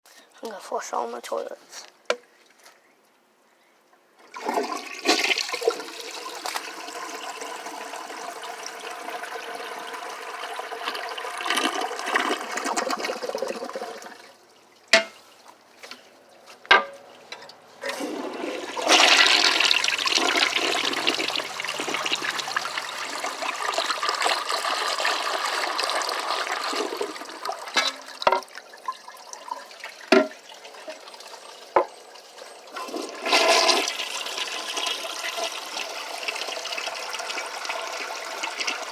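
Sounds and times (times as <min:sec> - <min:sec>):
toilet flushing: 0:04.2 - 0:14.4, 0:17.8 - 0:38.9
toilet tank refilling trickle: 0:04.2 - 0:15.5, 0:17.8 - 0:38.9.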